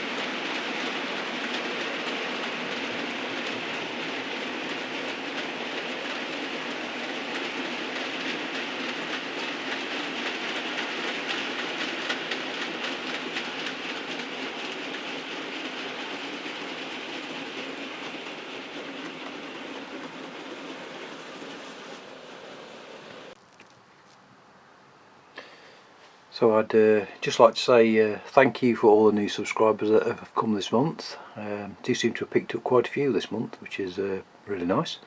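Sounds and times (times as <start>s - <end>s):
model train rolling rumble: 0.0s - 23.4s
wheels clicking over rails: 0.0s - 23.4s.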